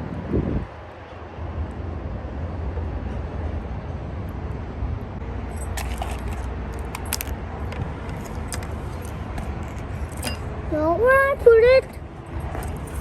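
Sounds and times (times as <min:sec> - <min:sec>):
small hard objects clinking: 0:05.6 - 0:10.4.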